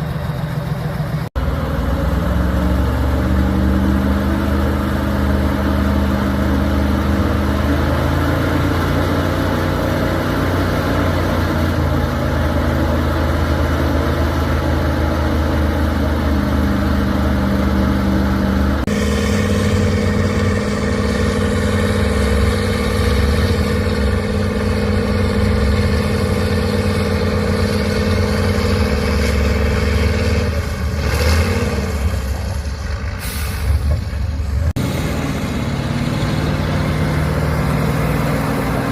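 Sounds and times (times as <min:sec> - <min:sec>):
truck engine revving: 0:00.0 - 0:38.9.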